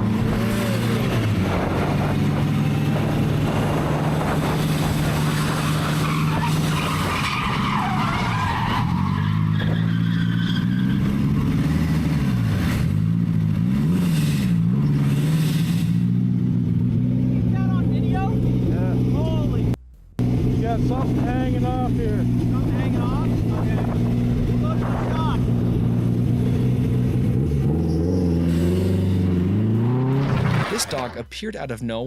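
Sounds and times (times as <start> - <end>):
vehicle engine running: 0.0 - 6.6, 11.0 - 29.7.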